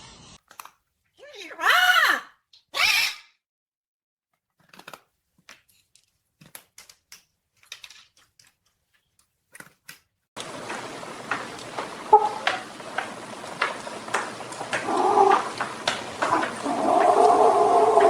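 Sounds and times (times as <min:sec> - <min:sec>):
faint room hiss: 0:10.4 - 0:18.0
light taps and clicks: 0:10.4 - 0:18.0.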